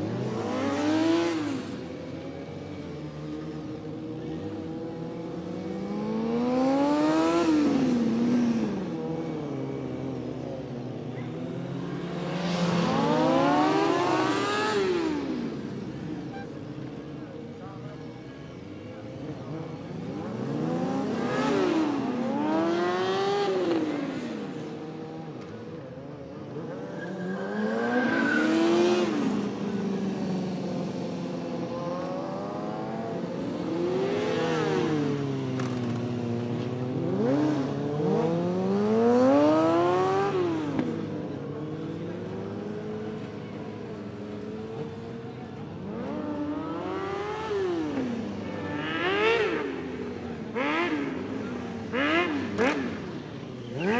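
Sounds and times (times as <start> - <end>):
motorcycle engine revving: 45.9 - 53.9.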